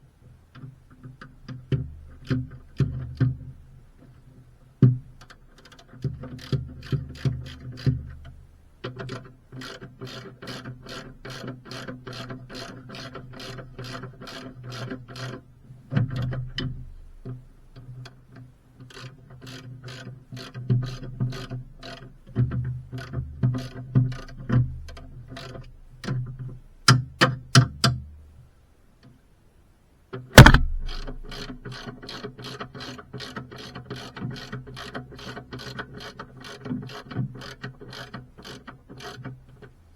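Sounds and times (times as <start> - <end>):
loud metallic knock: 30.4 - 31.6.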